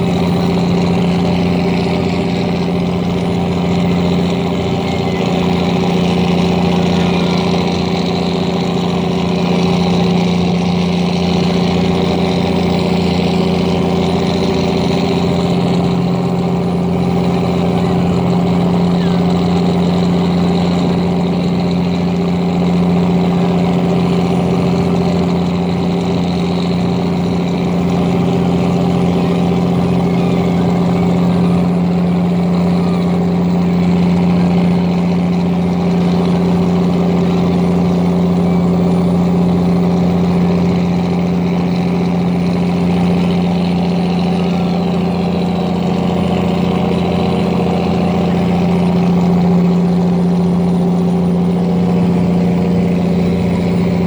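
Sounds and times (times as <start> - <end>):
large engine humming: 0.0 - 54.0.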